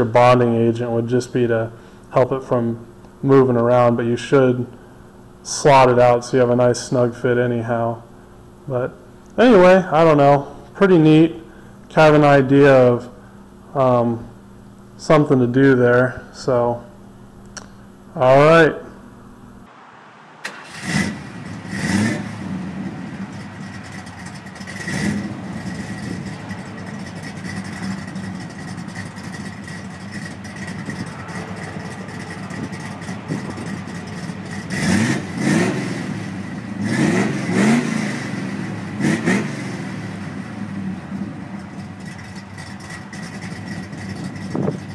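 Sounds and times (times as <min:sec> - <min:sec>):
car engine revving: 0:19.7 - 0:44.9.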